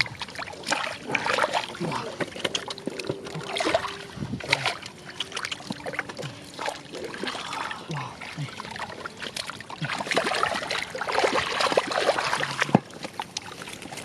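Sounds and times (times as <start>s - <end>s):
splashing in shallow muddy water: 0.0s - 14.0s.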